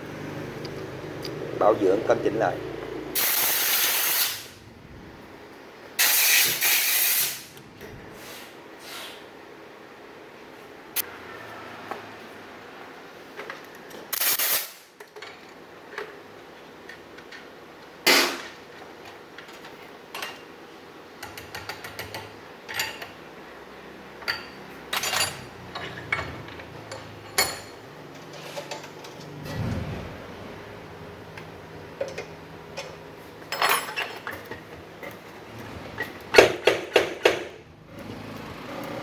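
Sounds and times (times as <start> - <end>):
metal tools clinking: 24.3 - 27.8, 32.0 - 34.6.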